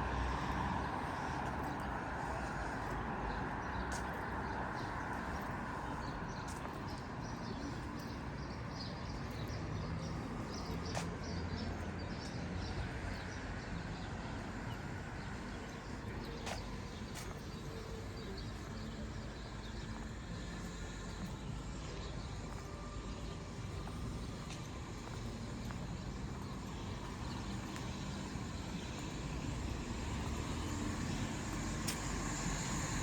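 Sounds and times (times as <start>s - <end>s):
distant traffic hum: 0.0s - 33.0s
footsteps: 0.5s - 8.1s, 16.0s - 18.0s, 23.3s - 29.1s, 30.1s - 32.7s
small birds chirping: 0.9s - 33.0s.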